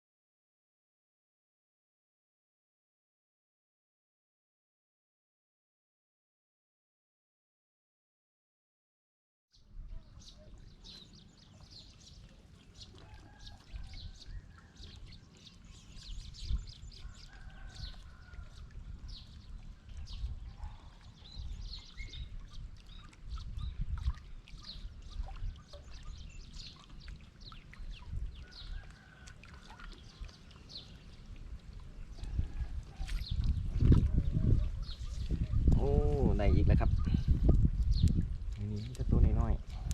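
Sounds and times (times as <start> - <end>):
small birds chirping: 9.6 - 39.9.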